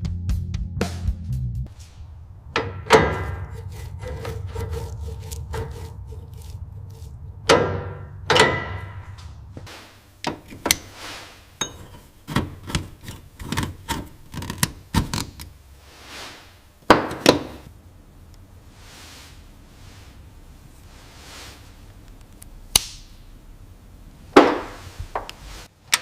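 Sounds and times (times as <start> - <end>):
low steady hum: 1.7 - 25.6
tool knocks and taps: 16.9 - 17.6.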